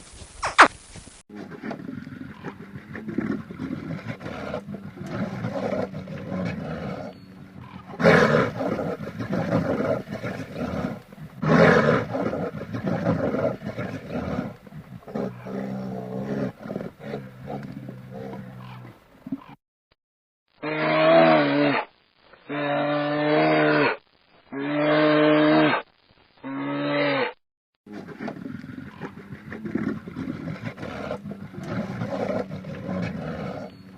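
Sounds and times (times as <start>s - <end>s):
lion roaring: 1.3s - 19.5s, 27.9s - 33.9s
lion growling: 1.3s - 19.6s, 27.9s - 33.9s.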